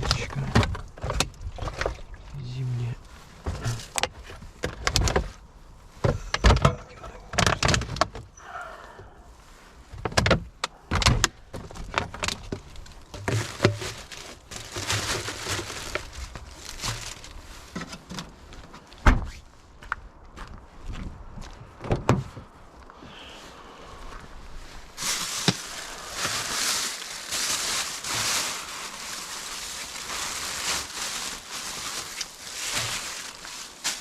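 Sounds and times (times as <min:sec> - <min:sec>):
knocks and clunks: 0:06.0 - 0:08.3, 0:21.8 - 0:22.5
rushing rustling noise: 0:12.5 - 0:19.8, 0:22.4 - 0:34.0.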